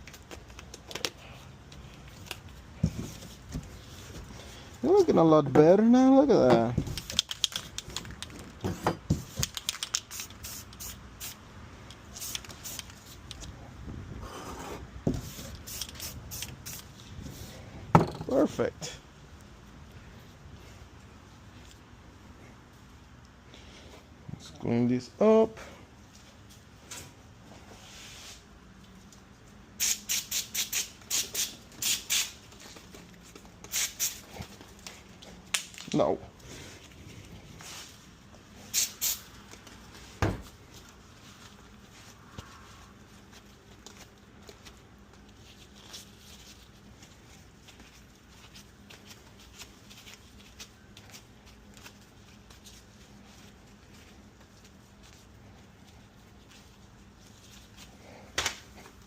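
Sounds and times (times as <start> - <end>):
aerosol spray hissing: 29.8 - 32.4, 33.7 - 34.2, 38.7 - 39.2.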